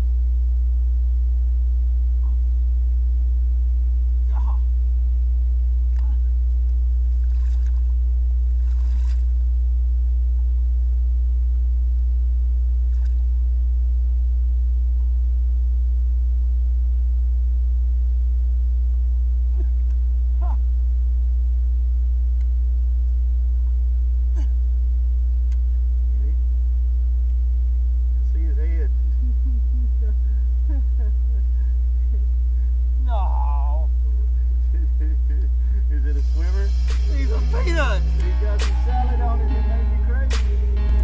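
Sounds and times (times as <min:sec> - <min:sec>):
steady low hum: 0:00.0 - 0:41.0
faint even tones: 0:36.2 - 0:41.0.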